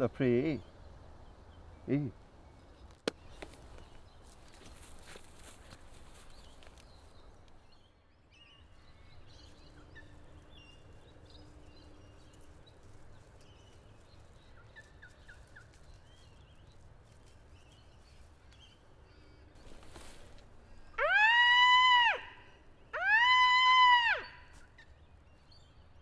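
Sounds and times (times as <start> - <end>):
faint bird chirps and trills: 0.0 - 21.2
low wind rumble: 5.8 - 24.2.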